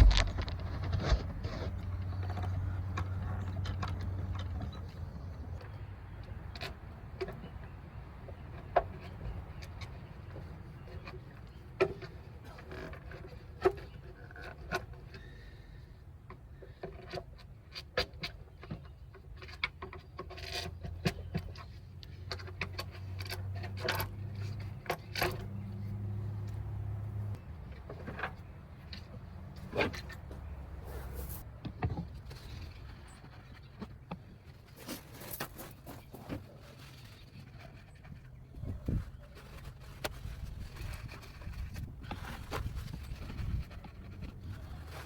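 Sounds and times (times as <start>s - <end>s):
sharp clicks and knocks: 0.0s - 5.0s.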